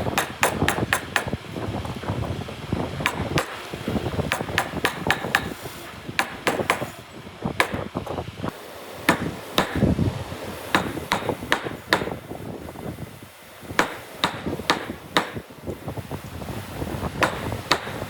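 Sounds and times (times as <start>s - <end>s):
hammer knocking on wood: 0.2s - 2.0s, 4.3s - 5.6s, 6.2s - 6.9s, 7.6s - 7.9s, 10.7s - 12.2s, 13.8s - 15.4s, 17.2s - 18.0s.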